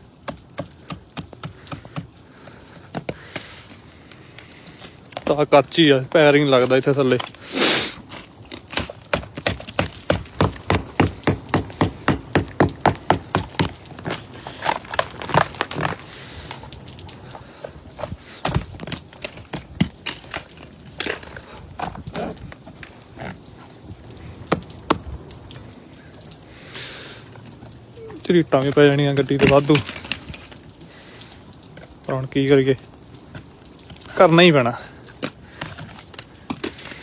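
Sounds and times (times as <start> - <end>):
metal spike chipping ice: 6.4 - 22.4, 28.6 - 30.4.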